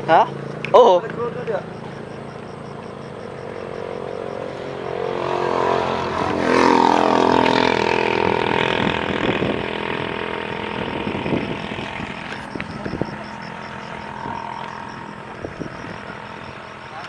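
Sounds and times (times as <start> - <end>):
vehicle passing by: 0.0 - 17.0.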